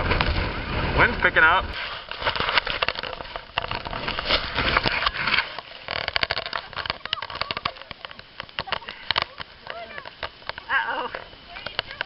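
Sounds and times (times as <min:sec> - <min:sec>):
wind buffeting microphone: 0:00.0 - 0:01.8
snow crunching: 0:00.0 - 0:12.0.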